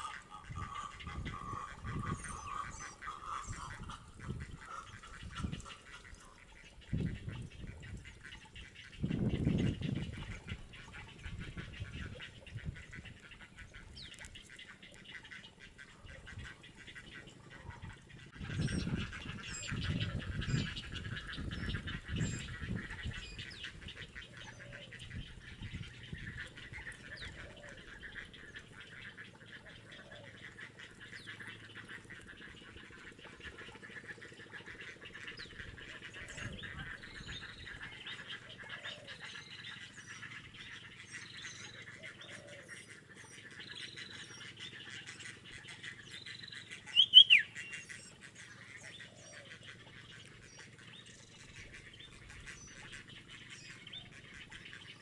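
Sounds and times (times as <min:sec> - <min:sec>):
birds calling: 0:00.0 - 0:55.0
sharp bird chirp: 0:46.9 - 0:47.6.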